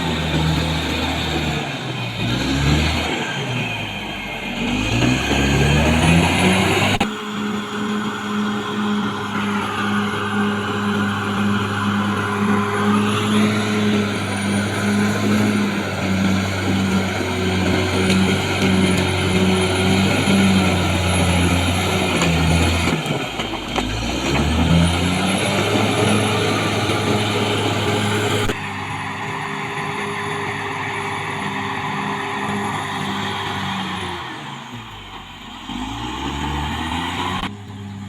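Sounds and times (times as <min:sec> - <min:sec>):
bulldozer diesel engine under load: 0:00.0 - 0:38.0.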